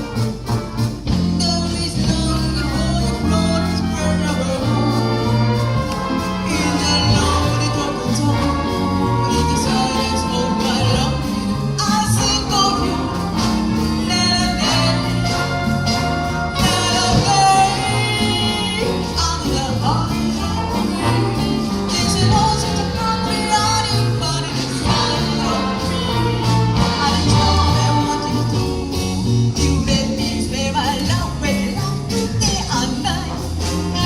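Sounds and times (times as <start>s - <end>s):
bass line: 0.0s - 34.0s
community band playing upbeat tune: 0.0s - 34.0s
steady drum beat: 0.0s - 34.0s.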